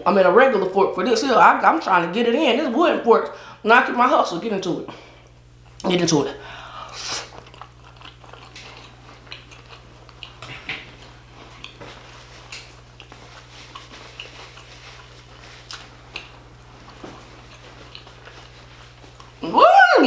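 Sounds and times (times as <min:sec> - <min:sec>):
steady low hum: 0:00.0 - 0:20.0
wet chewing smacks: 0:07.0 - 0:19.4.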